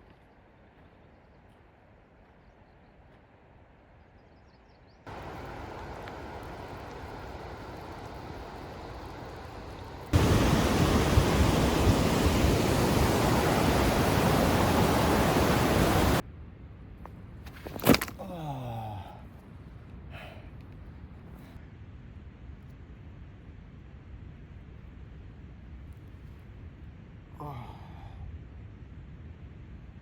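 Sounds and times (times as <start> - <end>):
rushing water: 5.1 - 16.2.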